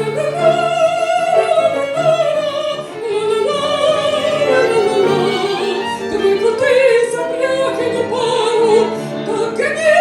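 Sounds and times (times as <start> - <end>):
instrumental accompaniment: 0.0 - 9.9
woman singing operatically: 0.0 - 10.0.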